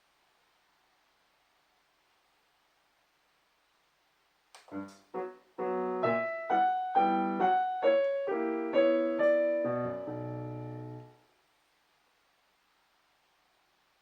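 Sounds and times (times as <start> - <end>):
solo piano chords: 4.7 - 11.2.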